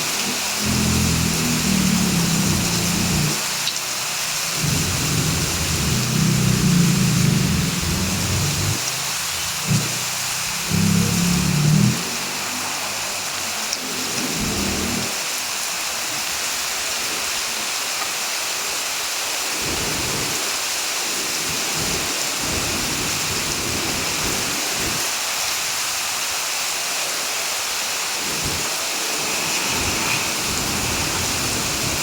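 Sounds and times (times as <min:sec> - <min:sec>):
heavy rain hissing: 0:00.0 - 0:32.0
low rumbles: 0:04.6 - 0:08.8.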